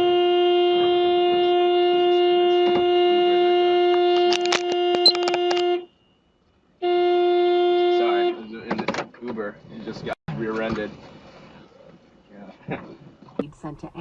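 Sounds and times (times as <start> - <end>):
vehicle horn held down: 3.9 - 5.8.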